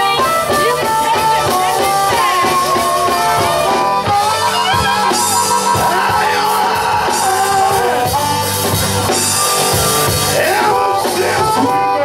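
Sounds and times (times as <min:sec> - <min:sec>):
person singing: 0:00.0 - 0:08.3, 0:10.2 - 0:12.0
blues band playing: 0:00.0 - 0:12.0
electric guitar fills: 0:00.0 - 0:12.0.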